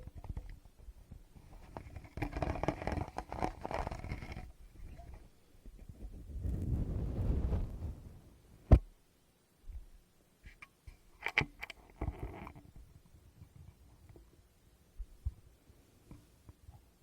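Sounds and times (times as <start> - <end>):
microphone handling rumble: 5.8 - 8.9.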